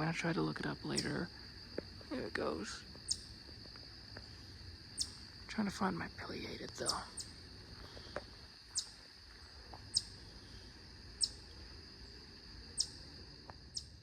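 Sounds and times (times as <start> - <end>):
high-pitched insect drone: 0.0 - 14.0
small bird chirping: 3.0 - 3.4, 5.0 - 5.2, 6.7 - 7.4, 8.7 - 9.0, 9.9 - 10.6, 11.2 - 11.6, 12.7 - 13.1, 13.7 - 14.0.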